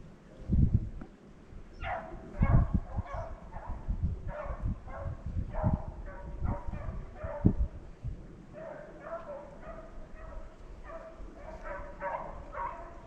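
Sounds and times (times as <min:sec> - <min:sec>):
hounds baying: 0:01.8 - 0:07.6, 0:08.5 - 0:13.0.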